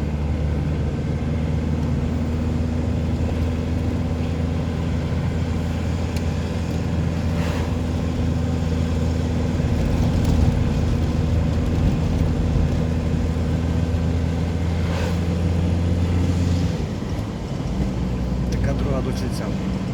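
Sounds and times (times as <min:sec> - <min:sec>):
vehicle engine droning: 0:00.0 - 0:19.9.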